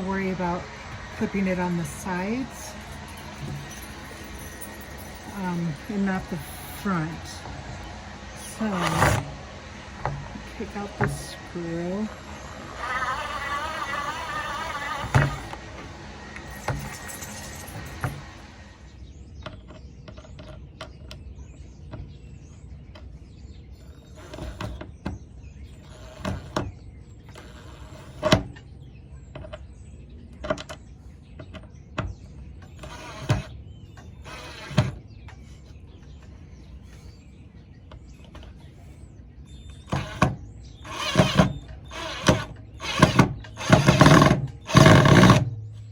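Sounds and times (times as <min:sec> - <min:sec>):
cordless drill running: 0:00.0 - 0:18.9, 0:24.0 - 0:24.8, 0:32.7 - 0:33.6, 0:34.2 - 0:35.0, 0:39.8 - 0:45.5.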